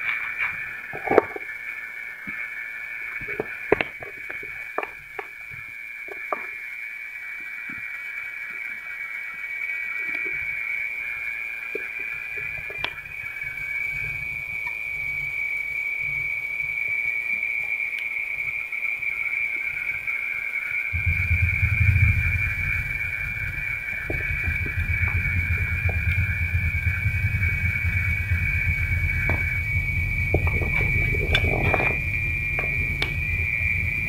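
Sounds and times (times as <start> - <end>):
burning coir crackling and popping: 0.0 - 34.0
high-pitched hiss: 0.0 - 34.0
low rumble: 20.9 - 34.0.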